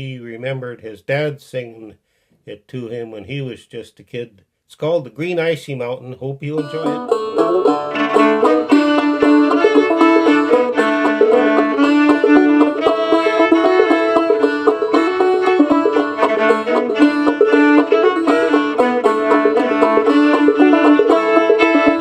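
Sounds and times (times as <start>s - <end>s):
banjo picking: 6.3s - 22.0s
fiddle holding long notes: 6.4s - 22.0s.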